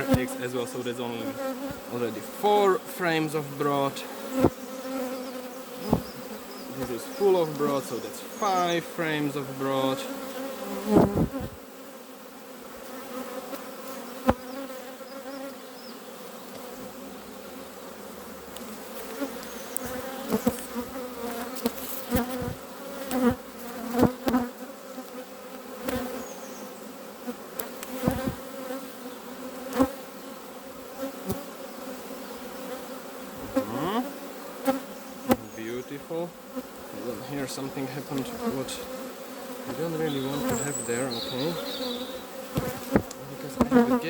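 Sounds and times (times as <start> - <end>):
honeybees buzzing: 0.0 - 44.0
hive frames knocking: 5.8 - 8.0, 10.8 - 11.6, 39.6 - 44.0.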